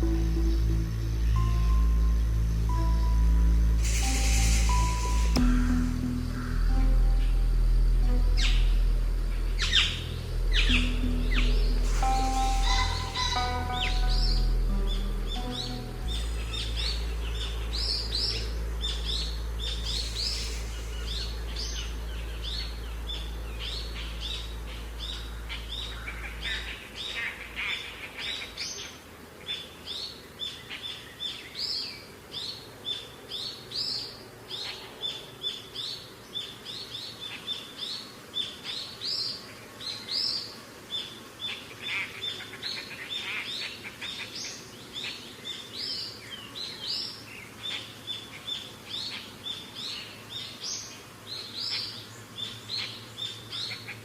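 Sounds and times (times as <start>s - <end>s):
steady low drone: 0.0s - 27.8s
birds chirping: 0.0s - 54.0s.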